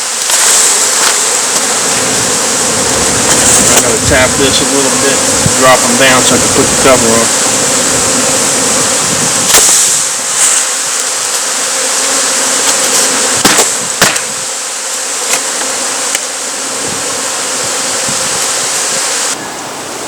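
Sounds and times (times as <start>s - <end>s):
bee swarm buzzing: 0.0s - 20.0s
sharp knocks on box: 13.4s - 14.4s.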